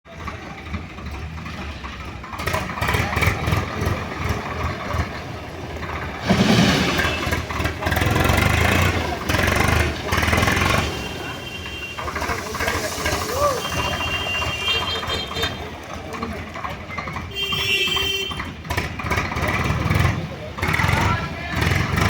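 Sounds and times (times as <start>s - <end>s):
backhoe diesel engine under load: 0.1s - 22.0s.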